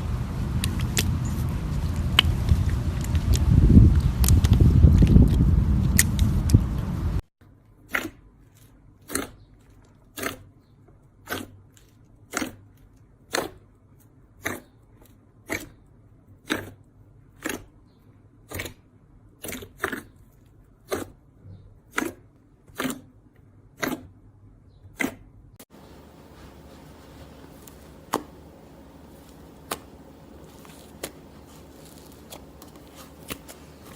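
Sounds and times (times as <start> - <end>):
slime being stretched by hand: 25.8 - 33.9
sticky slime pops: 27.6 - 33.9.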